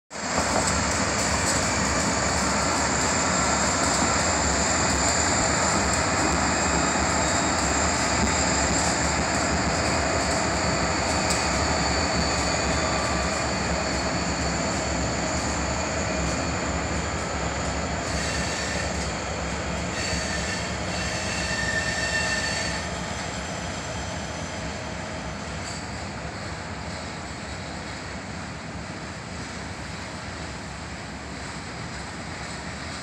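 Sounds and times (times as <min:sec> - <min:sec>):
train wheels rumbling on rail: 0:00.1 - 0:33.0
high-pitched wheel squeal: 0:02.5 - 0:09.0, 0:18.0 - 0:19.1, 0:19.9 - 0:23.2.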